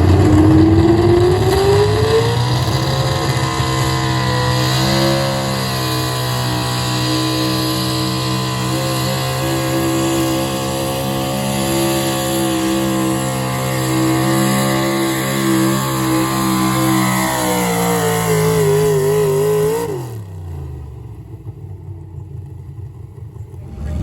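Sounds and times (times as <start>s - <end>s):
truck engine at full throttle: 0.0s - 24.0s
low rumble: 22.7s - 24.0s.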